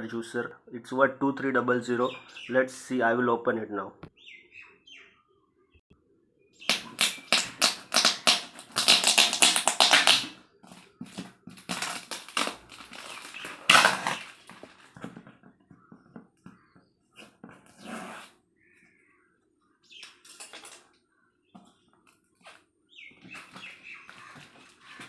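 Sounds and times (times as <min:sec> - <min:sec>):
packaging being torn open: 0:06.7 - 0:10.4, 0:11.6 - 0:14.7.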